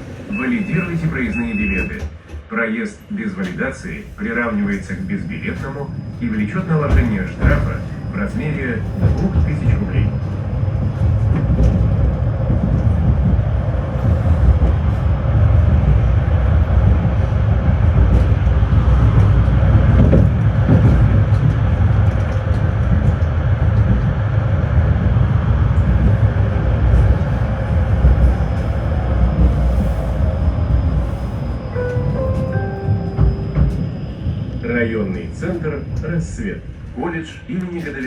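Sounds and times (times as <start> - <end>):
tram wheels rumbling on rails: 0.0 - 38.0.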